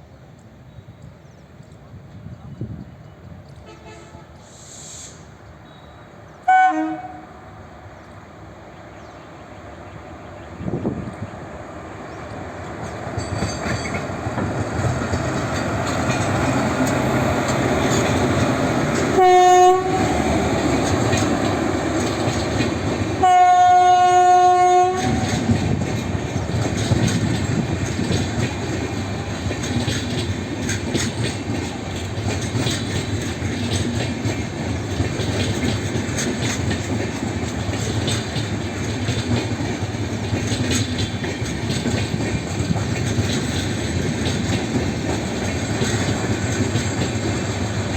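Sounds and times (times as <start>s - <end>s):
train rumble: 0.0s - 47.9s
two-tone train horn: 3.6s - 5.1s, 5.7s - 7.6s, 19.0s - 20.4s, 23.2s - 25.5s
wheels clattering over rail joints: 12.3s - 47.9s.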